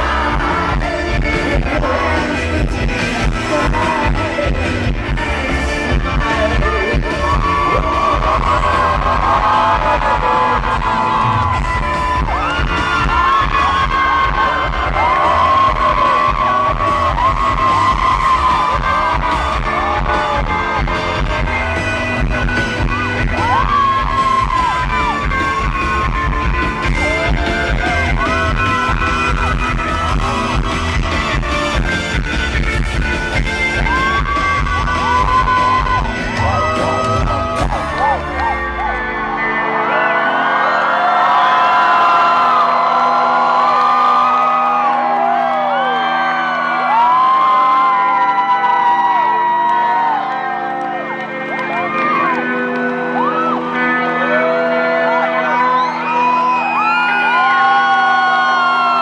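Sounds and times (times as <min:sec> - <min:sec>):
person singing: 0:00.0 - 0:11.6, 0:33.3 - 0:40.7
crowd yelling: 0:00.0 - 0:59.0
live rock band playing: 0:00.0 - 0:59.0.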